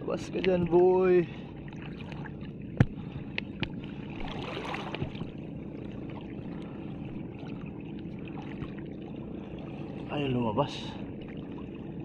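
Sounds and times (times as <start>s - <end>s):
water lapping at shoreline: 0.0s - 12.0s.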